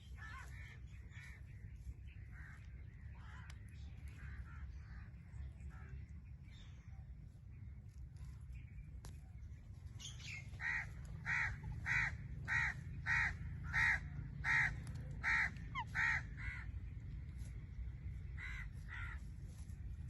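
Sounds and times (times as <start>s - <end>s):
steady low hum: 0.0s - 20.0s
parrot squawking: 15.2s - 16.2s.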